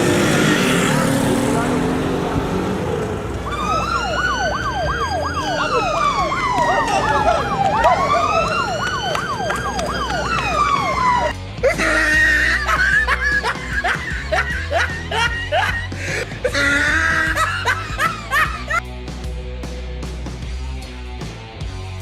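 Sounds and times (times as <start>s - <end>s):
police siren wailing: 3.3s - 12.6s
fast siren yelp: 3.4s - 11.4s.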